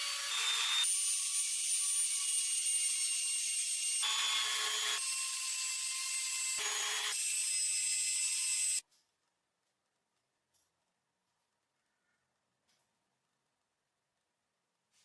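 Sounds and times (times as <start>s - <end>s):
power tool whining: 0.0s - 8.8s
tool grinding metal: 0.0s - 8.8s.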